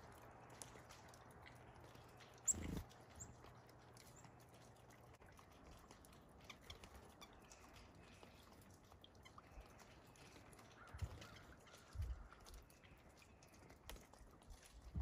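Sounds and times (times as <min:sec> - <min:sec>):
small ticks of birds feeding: 0:00.0 - 0:15.0
faint high bird chirps: 0:02.5 - 0:03.3.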